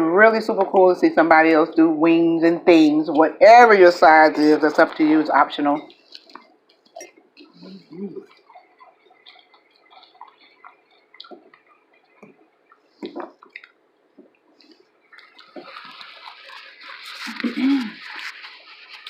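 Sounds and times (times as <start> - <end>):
chewing: 5.8 - 19.0
wet mouth clicks and lip smacks: 5.9 - 18.6
low hum of pleasure: 6.9 - 11.6.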